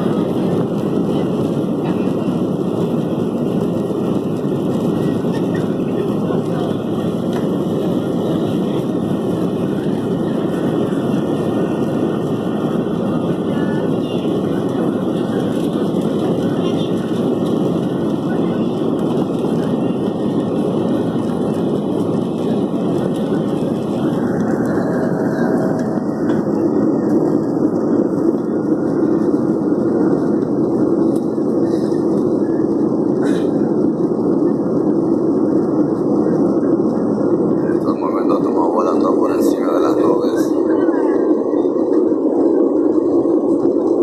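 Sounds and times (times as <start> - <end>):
airliner engine roar in cabin: 0.0 - 44.0.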